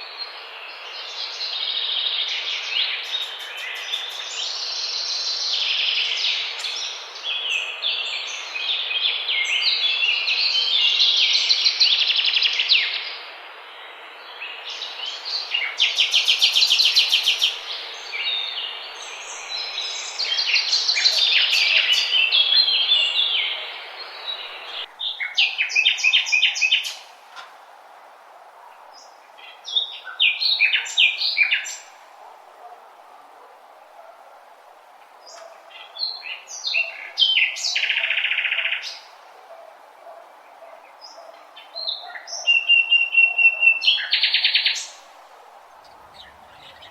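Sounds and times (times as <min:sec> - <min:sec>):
background hiss: 0:00.0 - 0:46.9
birds chirping and trilling: 0:01.0 - 0:13.2, 0:13.9 - 0:27.6, 0:35.3 - 0:46.9.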